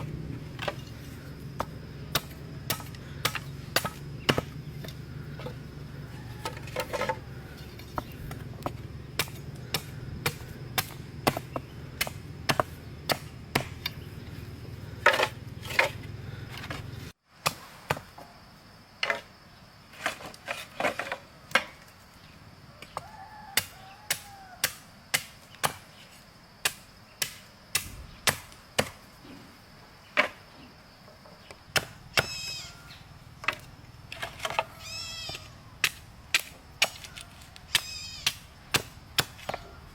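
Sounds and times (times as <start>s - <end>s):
tool chopping wood: 1.6s - 5.6s, 6.4s - 14.1s, 14.8s - 18.1s, 31.7s - 32.4s, 35.3s - 39.7s.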